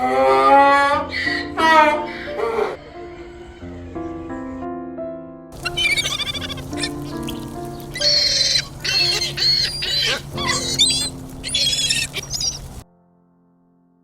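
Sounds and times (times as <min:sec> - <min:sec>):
soft keyboard music: 0:00.0 - 0:14.0
animal warbling chirping calls: 0:01.1 - 0:02.8, 0:05.6 - 0:12.8.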